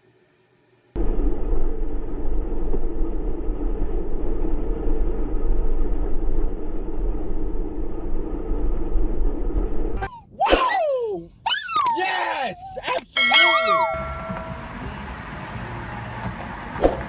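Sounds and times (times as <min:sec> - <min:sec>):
moving vehicle rumble: 0:13.7 - 0:17.0.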